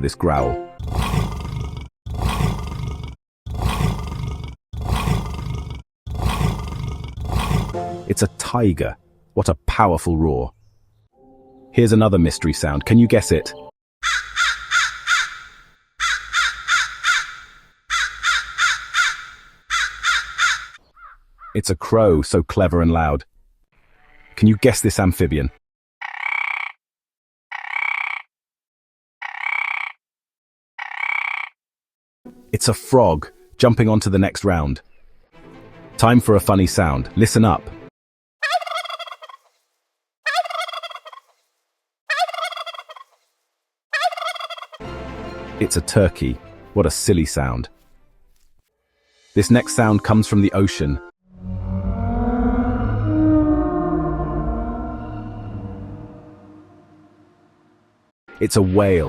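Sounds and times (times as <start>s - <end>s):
turkey gobbling: 14.0s - 20.8s, 38.4s - 39.5s, 40.3s - 41.4s, 42.1s - 43.2s, 43.9s - 44.8s
crow cawing: 14.0s - 21.5s.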